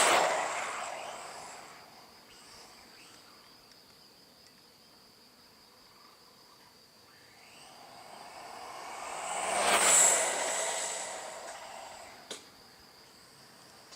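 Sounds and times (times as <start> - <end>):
rc car electric motor: 0.0 - 3.4, 7.1 - 12.4
steady high-pitched tone: 7.6 - 12.3.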